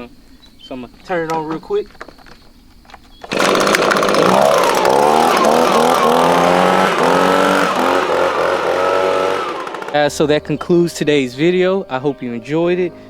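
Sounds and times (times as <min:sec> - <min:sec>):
leaf blower running: 0:03.3 - 0:10.1.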